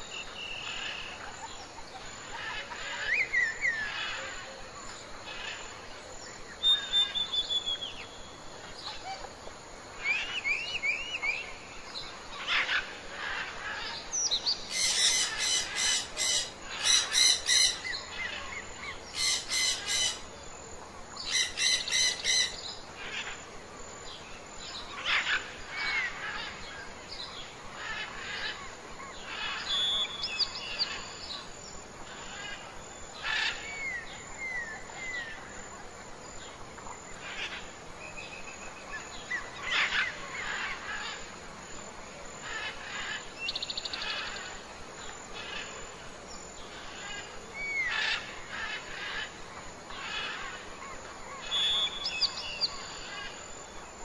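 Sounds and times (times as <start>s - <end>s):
steady background hiss: 0.0s - 54.0s
wild birds chirping: 0.0s - 54.0s
whistled bird notes: 6.6s - 8.2s, 51.4s - 52.9s.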